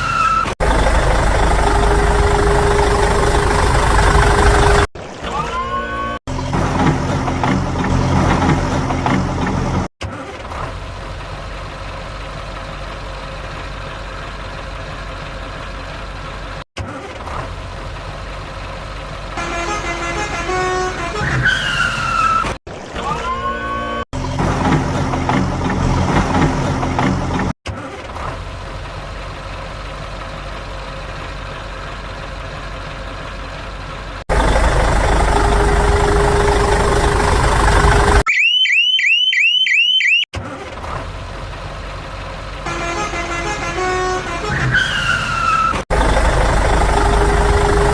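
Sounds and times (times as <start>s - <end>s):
heavy vehicle engines running: 0.0s - 38.2s, 40.4s - 47.9s
horn toots with gliding tones: 19.4s - 24.0s, 42.6s - 45.8s.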